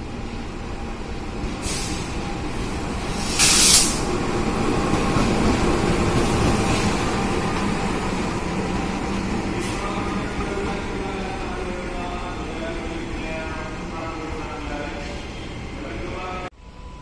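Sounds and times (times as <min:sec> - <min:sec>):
train low rumble: 0:00.0 - 0:17.0
short air hisses: 0:01.6 - 0:02.1, 0:03.2 - 0:04.1.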